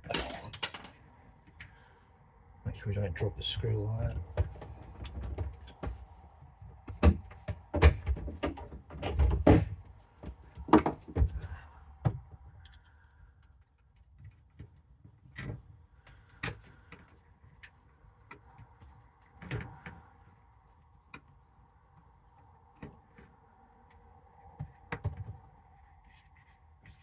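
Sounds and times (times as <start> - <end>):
plastic parts knocking and clicking: 0.0 - 1.0, 10.6 - 11.4.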